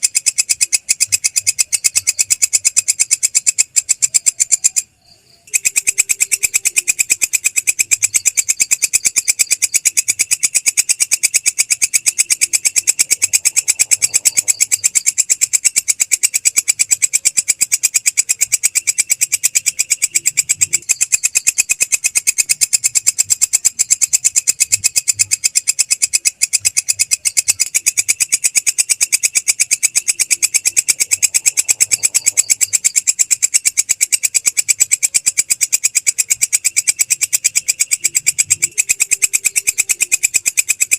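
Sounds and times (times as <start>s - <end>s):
grasshopper clicking call: 0.0s - 40.9s.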